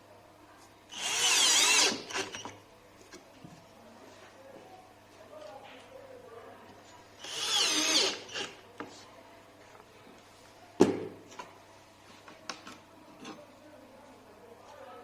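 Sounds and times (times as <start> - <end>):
small power tool motor whining: 0.9 - 2.5, 7.2 - 8.6.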